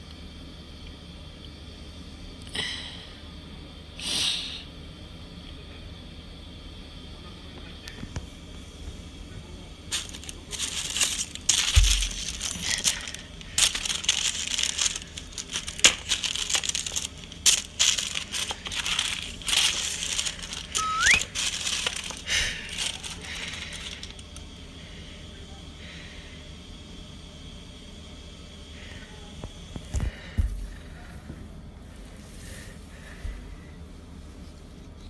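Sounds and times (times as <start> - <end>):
cat scratching crinkly material: 8.0 - 24.4, 29.6 - 35.0
short rising squeak: 20.8 - 21.3.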